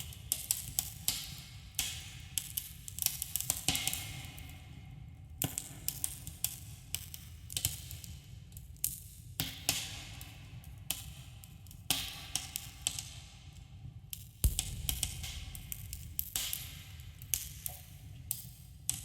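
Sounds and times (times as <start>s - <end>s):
steady low rumble: 14.4s - 17.4s
campfire crackling and popping: 14.5s - 17.7s.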